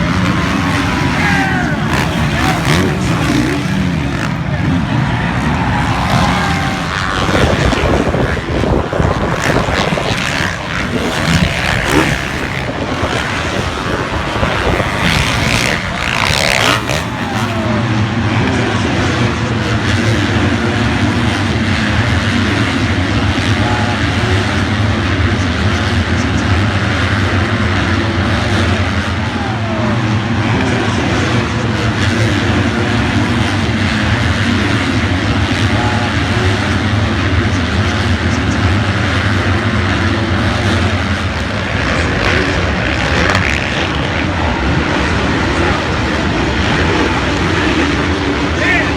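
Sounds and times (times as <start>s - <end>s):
motocross motorcycle engines: 0.0s - 48.9s
steady low engine drone: 0.0s - 48.9s.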